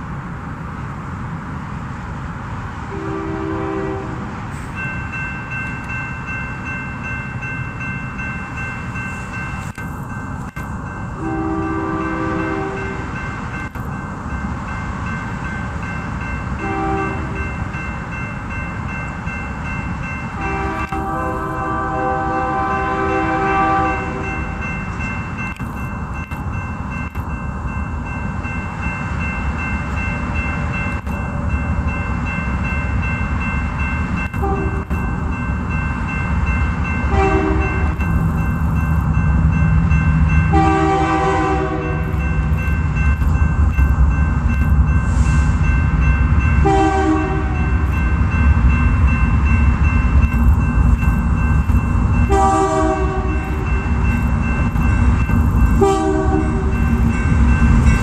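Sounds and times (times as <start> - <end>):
train rolling past: 0.0 - 58.0
locomotive air horn blasts: 2.9 - 4.2, 11.2 - 13.0, 16.6 - 17.4, 20.4 - 24.4, 34.4 - 34.9, 37.1 - 37.8, 40.5 - 42.1, 46.6 - 47.7, 52.3 - 53.4, 55.8 - 56.8.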